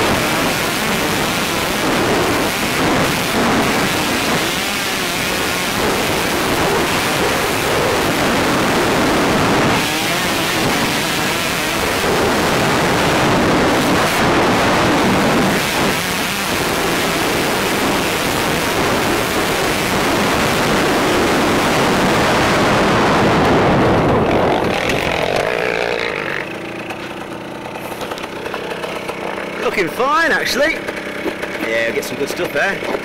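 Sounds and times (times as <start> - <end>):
motocross bike engine: 0.0 - 33.0.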